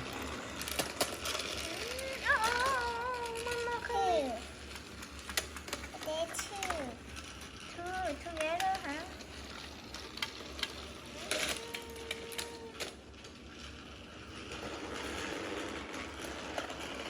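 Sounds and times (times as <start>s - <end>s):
toy train motors whirring: 0.0s - 17.0s
clicks of toy pieces handled: 0.5s - 13.0s.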